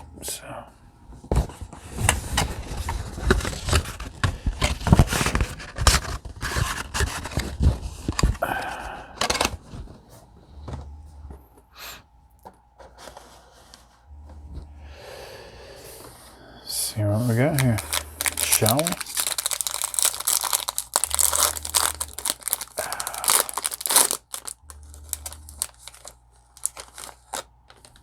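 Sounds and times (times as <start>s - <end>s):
card packaging being torn open: 17.2s - 28.0s.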